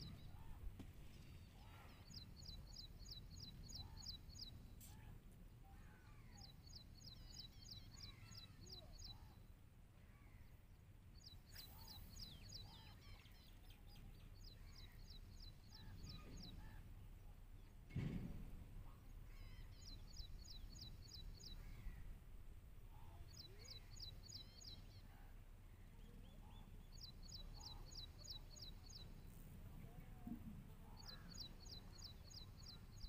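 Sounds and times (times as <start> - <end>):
soft scattered bird chirps: 0.0 - 22.2, 22.8 - 33.0
brief low thump: 17.9 - 18.7.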